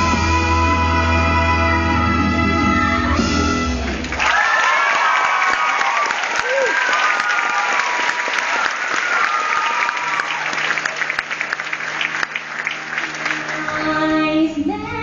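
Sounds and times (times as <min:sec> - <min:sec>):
music: 0:00.0 - 0:04.2, 0:09.4 - 0:15.0
audience applauding: 0:03.8 - 0:14.2
whoops: 0:04.2 - 0:10.6.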